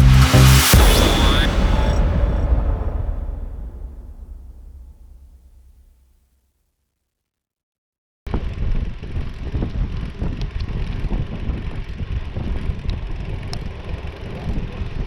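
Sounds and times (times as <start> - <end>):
wind rush on microphone: 8.4 - 15.0.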